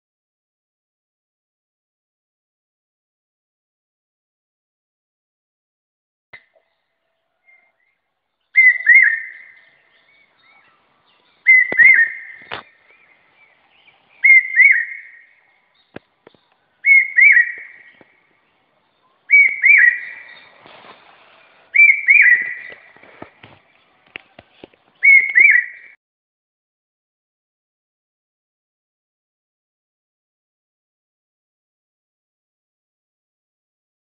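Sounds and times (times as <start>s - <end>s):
two-note whistled bird call: 8.6s - 10.6s, 11.4s - 12.5s, 14.2s - 15.3s, 16.8s - 17.9s, 19.3s - 20.4s, 21.8s - 22.9s, 25.0s - 26.0s
faint knocks and rustles: 22.7s - 25.0s.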